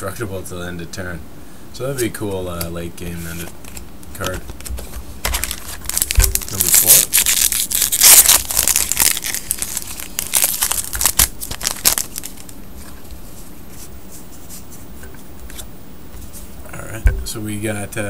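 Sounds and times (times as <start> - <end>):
foil wrapper tearing and crinkling: 3.6 - 12.6.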